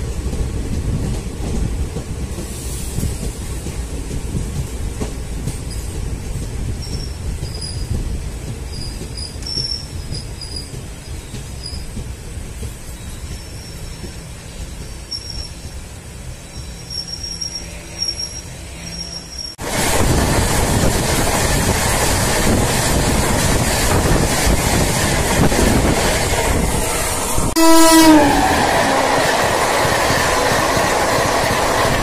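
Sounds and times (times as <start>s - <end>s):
train rumbling and clattering past: 0.0s - 32.0s
train horn blast: 26.9s - 29.5s.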